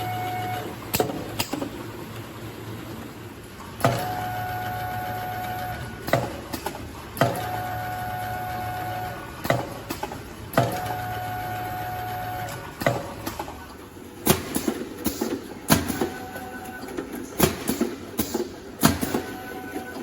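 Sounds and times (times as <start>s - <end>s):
steady machinery hum: 0.0s - 20.0s
machinery sharp knocks: 14.3s - 16.2s, 17.4s - 19.3s.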